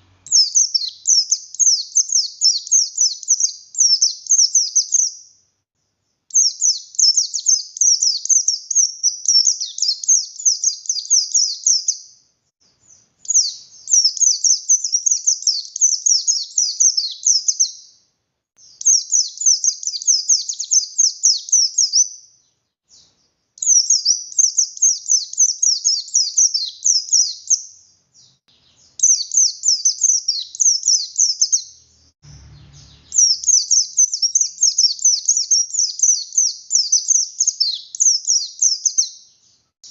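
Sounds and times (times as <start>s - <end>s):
bird singing chattering notes: 0.0s - 5.2s, 23.0s - 39.2s.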